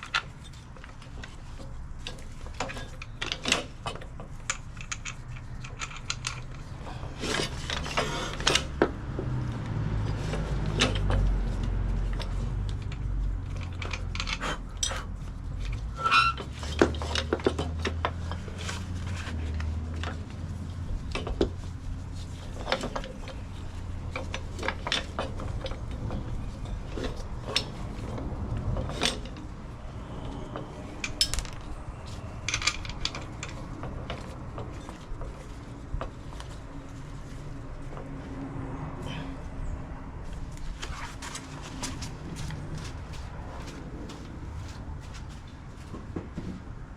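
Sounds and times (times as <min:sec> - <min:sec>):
metal tools clinking and clanking: 0:22.4 - 0:29.6, 0:30.2 - 0:35.0
low rumble: 0:25.5 - 0:35.0, 0:38.4 - 0:46.2.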